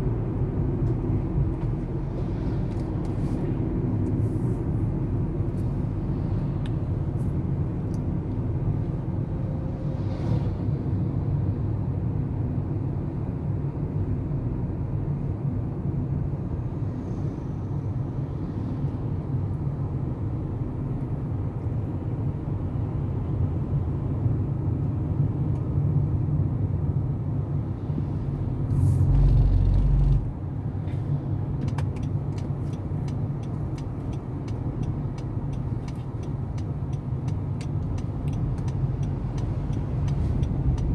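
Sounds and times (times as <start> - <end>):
light ticks: 31.6 - 40.9.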